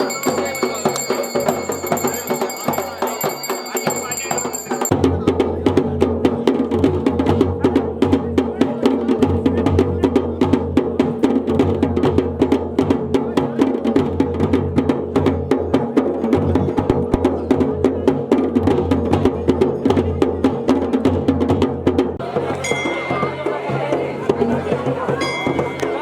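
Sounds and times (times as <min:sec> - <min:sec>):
drums in fast rhythm: 0:00.0 - 0:26.0.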